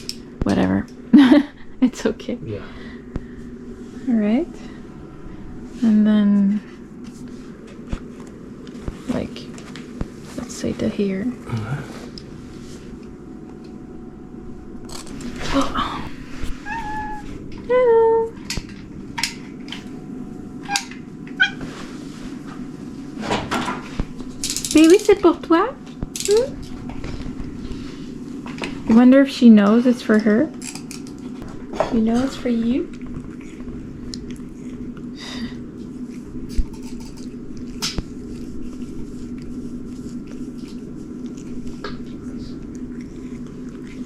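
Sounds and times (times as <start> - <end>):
steady low hum: 0.0 - 44.0
cat meowing: 16.5 - 17.4.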